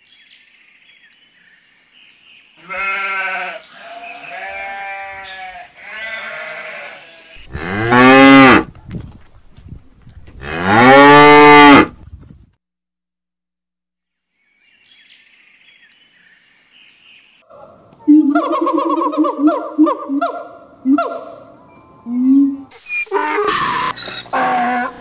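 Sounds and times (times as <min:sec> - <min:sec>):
sheep and lambs bleating: 0:02.6 - 0:08.1.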